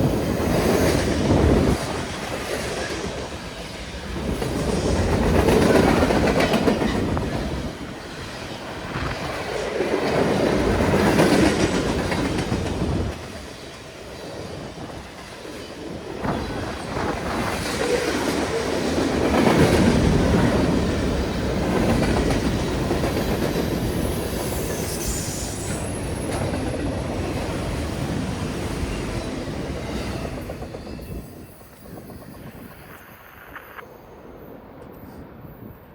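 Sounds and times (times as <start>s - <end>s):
train wheels clattering over rails: 0.0s - 32.1s
high wheel squeal: 30.4s - 35.8s.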